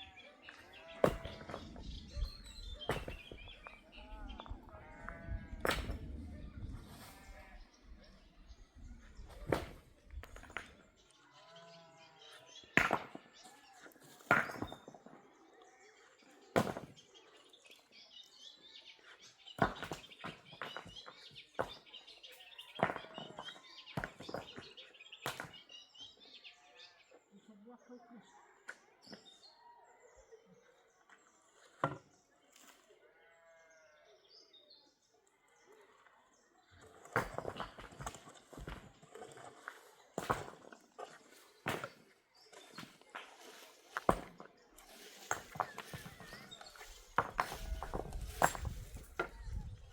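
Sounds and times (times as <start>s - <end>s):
livestock bleat: 0.0s - 1.6s, 4.0s - 5.7s, 6.9s - 7.7s, 11.3s - 12.2s, 33.1s - 34.1s
knocks and rustles: 40.2s - 49.9s.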